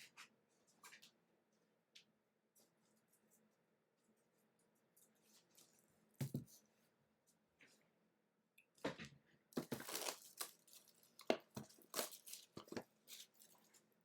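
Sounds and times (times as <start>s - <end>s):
packaging torn and crinkled: 9.6s - 13.6s.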